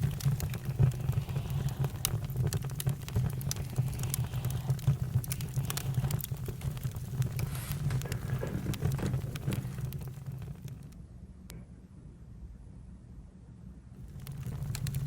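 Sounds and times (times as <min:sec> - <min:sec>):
campfire pops and snaps: 0:00.0 - 0:11.0, 0:14.0 - 0:15.0
low rumble of burning: 0:00.0 - 0:11.5, 0:13.9 - 0:15.0.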